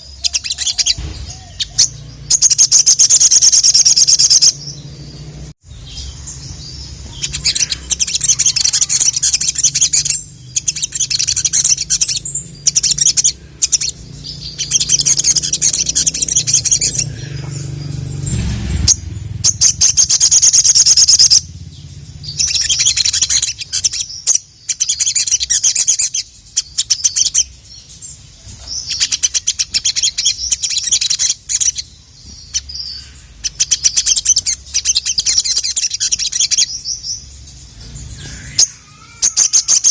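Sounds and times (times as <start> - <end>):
sunbird chattering trills: 0.0 - 39.9.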